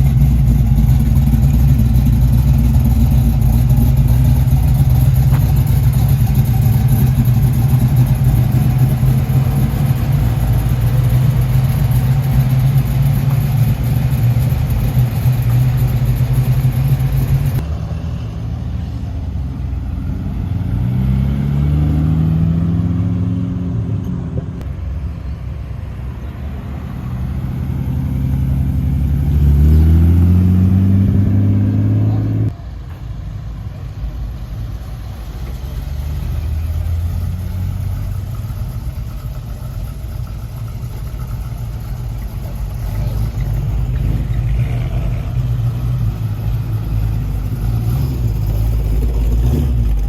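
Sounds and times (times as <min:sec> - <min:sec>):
car engine revving: 0:00.0 - 0:17.6, 0:19.6 - 0:24.3, 0:26.7 - 0:32.6, 0:34.8 - 0:50.0
car engine idling: 0:00.0 - 0:20.4, 0:24.6 - 0:29.8, 0:32.5 - 0:50.0.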